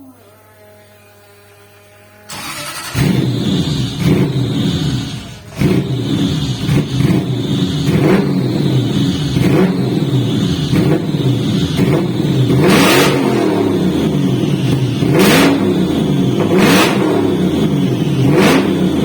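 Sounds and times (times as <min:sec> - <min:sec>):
car engine revving: 0:02.3 - 0:19.0.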